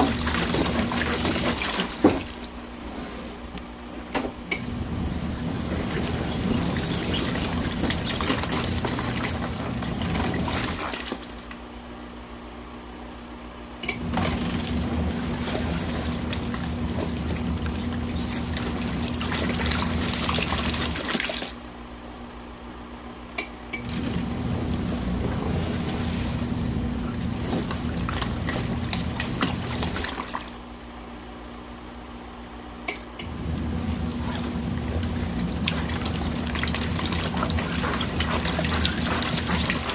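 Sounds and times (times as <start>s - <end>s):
water sloshing: 0.0s - 2.6s, 5.3s - 11.5s, 14.3s - 21.6s, 25.0s - 30.6s, 33.9s - 39.9s
washing machine motor hum: 0.0s - 39.9s.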